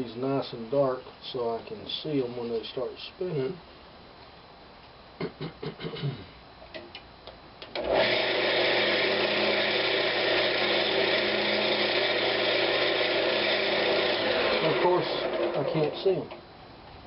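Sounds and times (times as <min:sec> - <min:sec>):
wood lathe motor whirring: 0:07.7 - 0:16.4.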